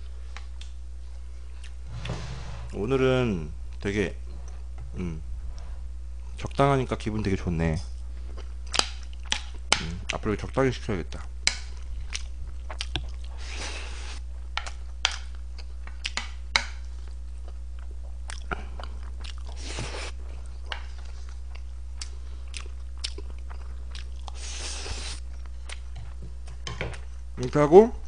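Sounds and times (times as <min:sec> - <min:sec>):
low hum: 0:00.0 - 0:10.3
close chewing and mouth sounds: 0:00.3 - 0:01.8, 0:07.9 - 0:27.6.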